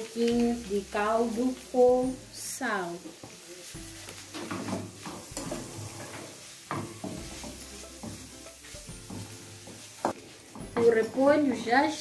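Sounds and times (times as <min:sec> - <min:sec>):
cabbage sizzling in frying pan: 0:00.0 - 0:12.0
wooden spatula scraping pan: 0:04.0 - 0:11.2.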